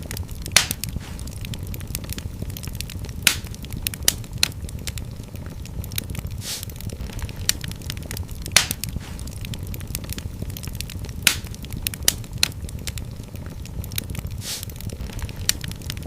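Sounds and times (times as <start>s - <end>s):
fireplace fire crackling: 0.0s - 16.0s
loud fire pops: 0.0s - 16.0s
low fire rumble: 0.0s - 16.0s
brief hiss: 6.4s - 6.7s, 14.4s - 14.7s.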